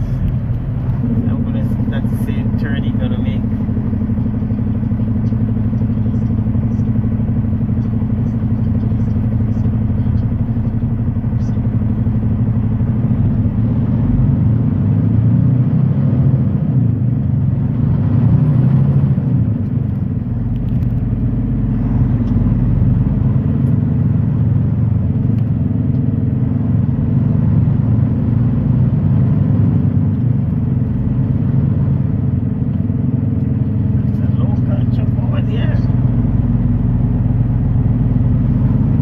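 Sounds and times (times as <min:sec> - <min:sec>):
road noise: 0:00.0 - 0:39.0
truck diesel engine drone: 0:00.0 - 0:39.0.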